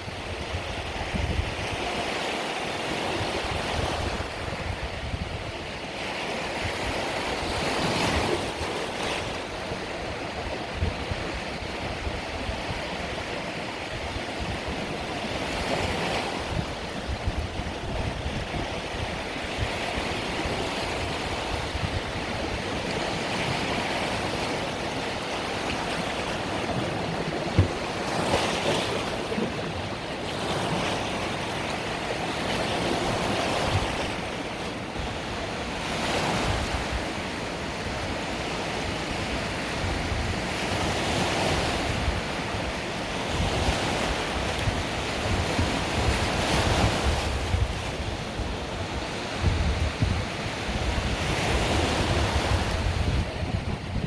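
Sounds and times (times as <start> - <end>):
sea waves breaking on shore: 0.0 - 54.0
brief knock: 27.5 - 27.8.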